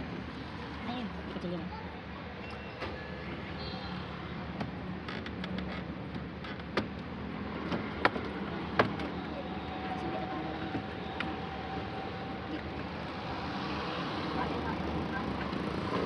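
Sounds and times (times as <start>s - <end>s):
sharp clicks and knocks: 4.6s - 9.1s.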